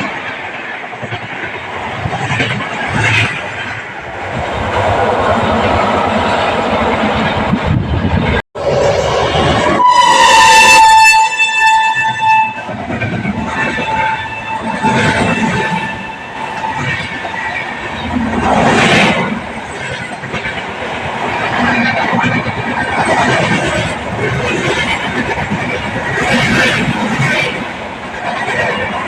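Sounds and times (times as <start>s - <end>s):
train wheels rattling on rails: 0.0s - 29.0s
electric locomotive horn blast: 9.6s - 12.7s, 13.3s - 16.9s.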